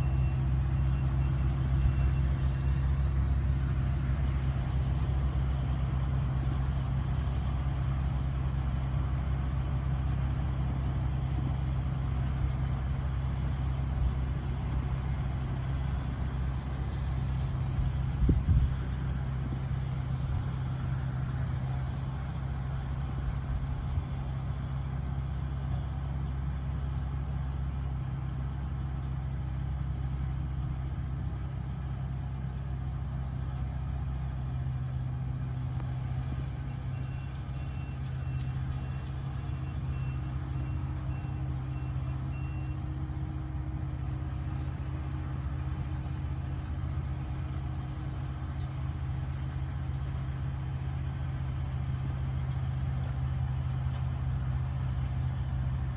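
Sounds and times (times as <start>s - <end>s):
steady low rumble: 0.0s - 42.4s.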